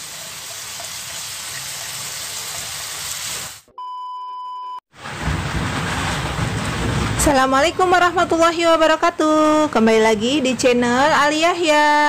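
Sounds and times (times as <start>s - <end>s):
vegetables sizzling in a wok: 0.0s - 3.7s
steady high beep: 3.8s - 4.8s.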